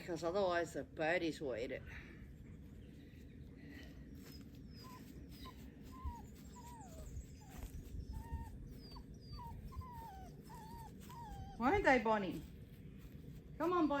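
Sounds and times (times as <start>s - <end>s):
small birds chirping: 2.1s - 14.0s
puppy whimpering: 4.2s - 12.0s.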